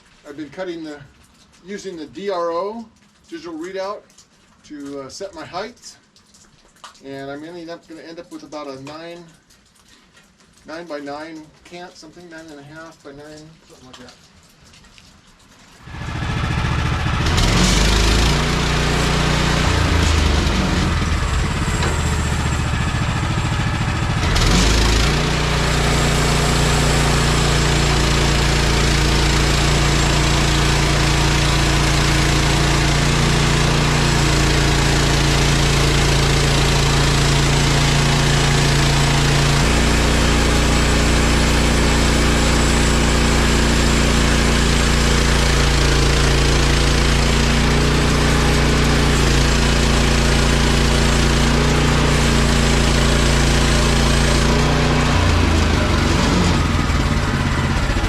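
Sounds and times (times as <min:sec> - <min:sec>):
sawmill gasoline engine running: 0:15.8 - 0:58.0.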